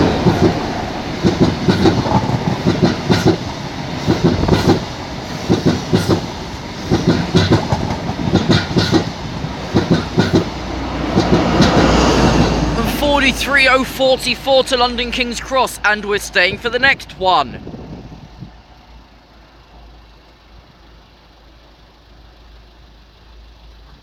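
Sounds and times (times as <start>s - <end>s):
train wheels clacking: 0.0s - 17.0s
train passing with rumble: 0.0s - 24.0s.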